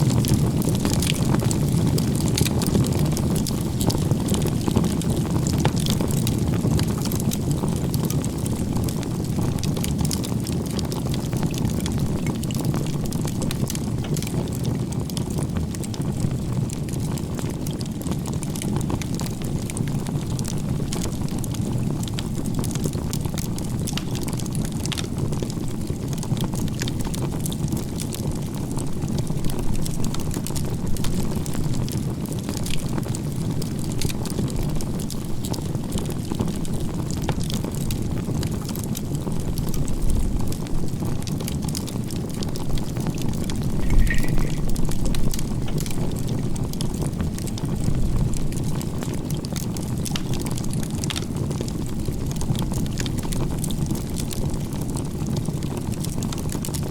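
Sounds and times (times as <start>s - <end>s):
campfire flames roaring: 0.0s - 56.9s
fire crackles and pops: 0.0s - 56.9s.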